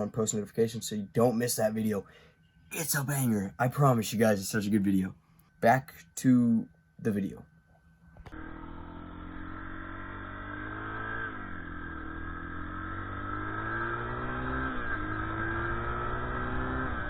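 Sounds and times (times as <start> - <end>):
motorcycle engine accelerating: 8.2 - 17.0.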